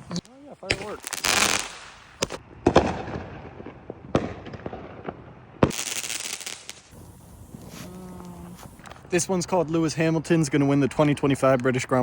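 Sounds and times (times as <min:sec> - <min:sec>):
fireworks bangs: 0:00.7 - 0:09.1
hissing crackle: 0:05.7 - 0:09.1.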